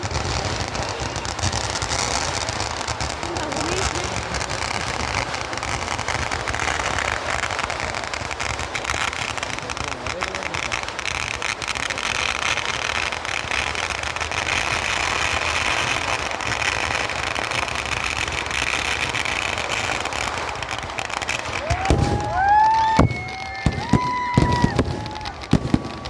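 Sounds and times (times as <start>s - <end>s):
firecrackers crackling: 0.0s - 26.0s
whistling fireworks: 0.0s - 26.0s
heavy firework bang: 14.6s - 26.0s.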